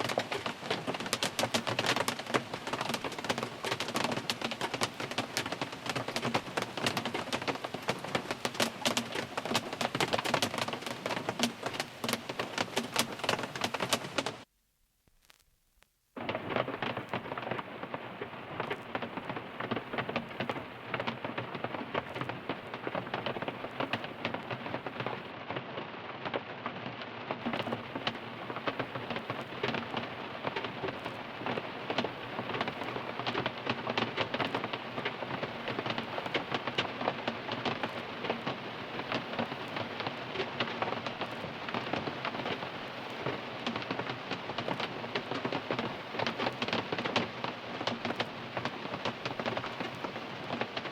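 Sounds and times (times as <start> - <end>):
heavy rain on car roof: 0.0 - 14.5, 16.2 - 50.9.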